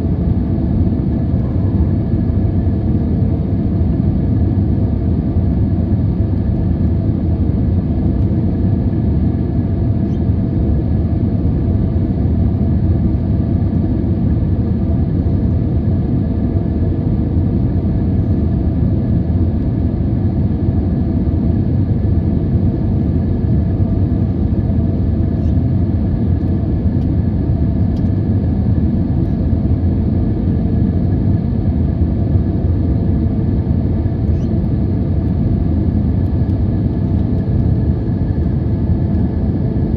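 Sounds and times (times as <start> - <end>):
airplane low rumble: 0.0 - 39.9.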